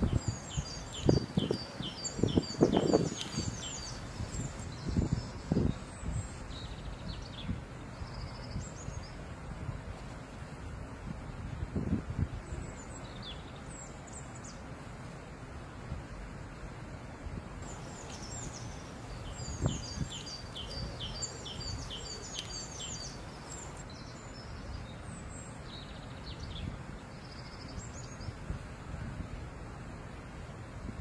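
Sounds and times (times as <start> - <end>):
small songbird chirping: 0.0 - 9.2, 12.5 - 14.6, 17.6 - 28.4
wind rumble on microphone: 0.0 - 14.6, 15.6 - 31.0.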